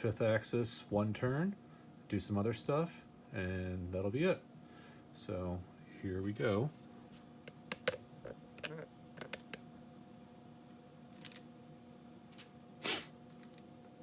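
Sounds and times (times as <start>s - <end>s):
faint steady hum: 0.0s - 14.0s
short hiss: 12.8s - 13.2s.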